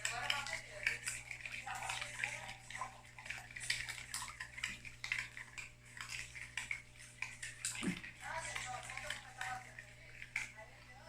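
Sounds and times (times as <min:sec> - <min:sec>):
batter sloshing while stirred: 0:00.0 - 0:11.0.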